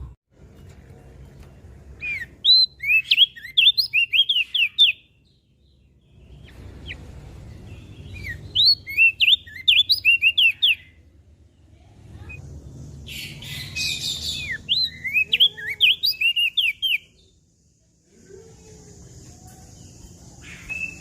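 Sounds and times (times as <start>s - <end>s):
bird whistled song: 2.0s - 7.0s, 7.7s - 11.0s, 13.1s - 17.4s, 19.8s - 21.0s.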